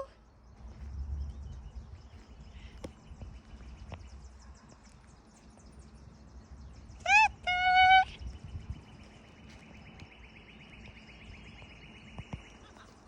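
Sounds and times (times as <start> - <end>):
low rumble: 0.4 - 7.1.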